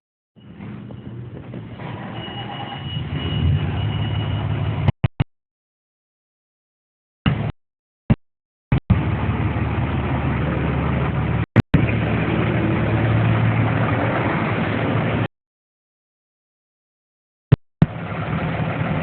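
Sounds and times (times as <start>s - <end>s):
fire engine running: 0.4s - 4.9s, 8.7s - 15.3s, 17.8s - 19.0s.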